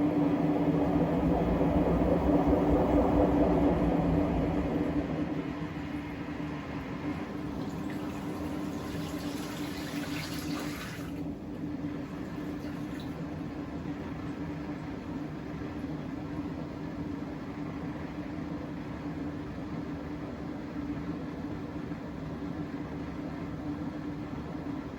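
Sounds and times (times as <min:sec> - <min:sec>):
washing machine low hum: 0:00.0 - 0:24.9
water rushing into drum: 0:07.4 - 0:13.5.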